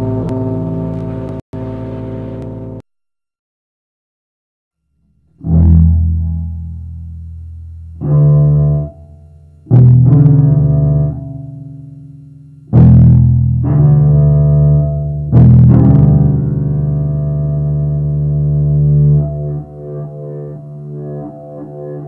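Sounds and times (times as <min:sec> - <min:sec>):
double bass low notes: 0:05.2 - 0:12.0, 0:12.6 - 0:21.5.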